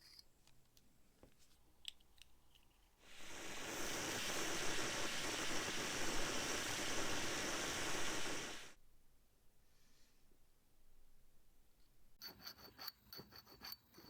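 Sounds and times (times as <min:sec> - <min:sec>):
pressurized air hissing: 0:03.0 - 0:08.8.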